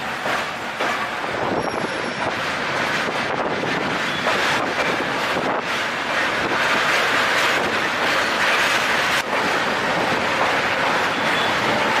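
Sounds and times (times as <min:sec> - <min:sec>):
train coaches running: 0:00.0 - 0:12.0
wind rushing across microphone: 0:01.2 - 0:08.0.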